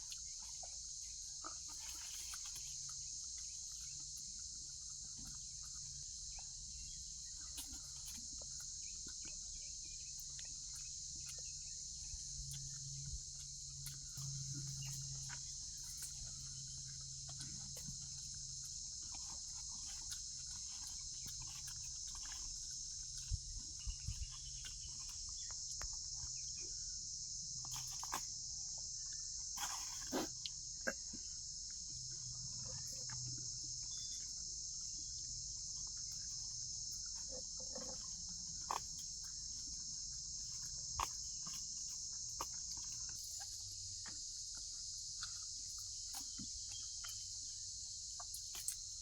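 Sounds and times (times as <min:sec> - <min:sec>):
high-pitched insect chorus: 0:00.0 - 0:49.0
low steady hum: 0:02.1 - 0:47.4.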